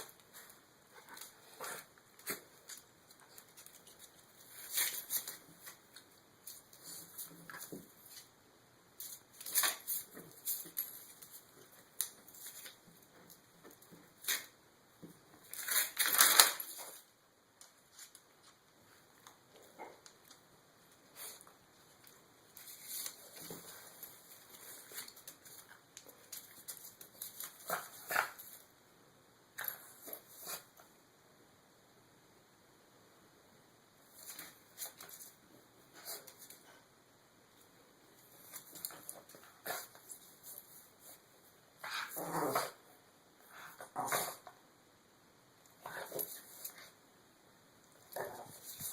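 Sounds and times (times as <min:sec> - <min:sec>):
paper rustling and crinkling: 0:15.4 - 0:17.0, 0:22.0 - 0:28.5.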